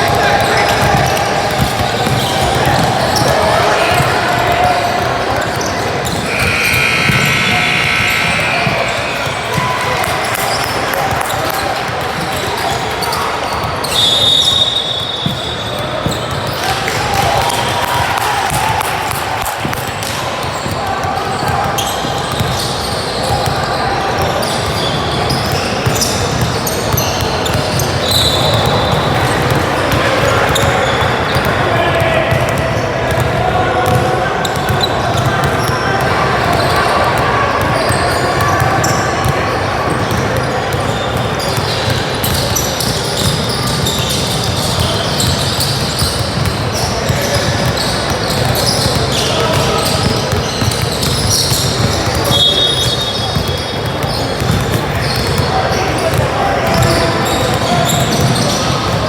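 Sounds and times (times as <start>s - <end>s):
sneaker squeaks: 0.0s - 17.7s, 19.1s - 59.0s
basketball bouncing on court: 0.0s - 59.0s
crowd hubbub echoing: 0.0s - 59.0s
voices of players and spectators: 0.0s - 59.0s
short high squeaks: 6.0s - 10.7s.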